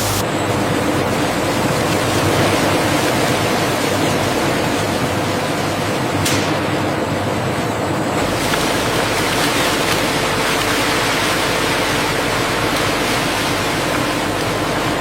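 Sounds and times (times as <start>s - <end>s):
water rushing: 0.0s - 0.2s.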